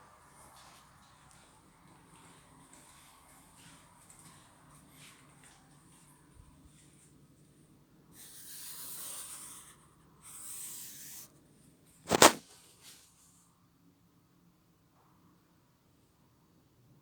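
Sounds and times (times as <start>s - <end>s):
sharp knock: 12.1s - 12.4s.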